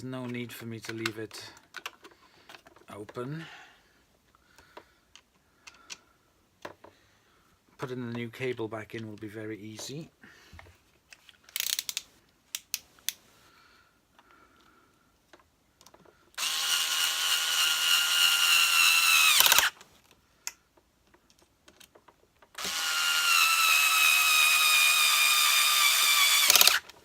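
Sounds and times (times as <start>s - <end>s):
plastic parts clicking: 0.2s - 3.2s, 4.6s - 7.0s, 11.1s - 13.2s, 15.3s - 17.0s, 19.0s - 23.6s, 24.4s - 27.0s
power screwdriver driving screws: 16.4s - 19.8s, 22.6s - 26.9s.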